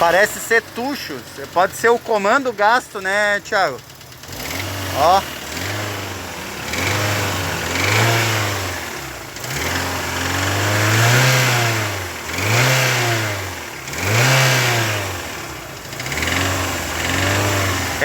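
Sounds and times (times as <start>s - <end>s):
engine top-end ticking noise: 0.0s - 5.9s
car engine revving: 0.0s - 18.0s.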